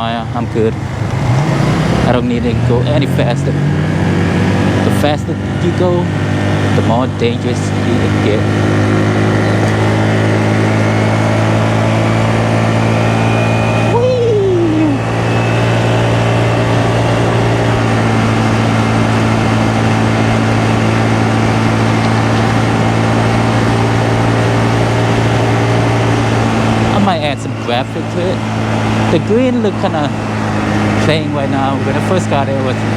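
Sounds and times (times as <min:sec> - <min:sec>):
small motorcycle engine running: 0:00.0 - 0:32.9
brief falling tone: 0:11.0 - 0:18.2.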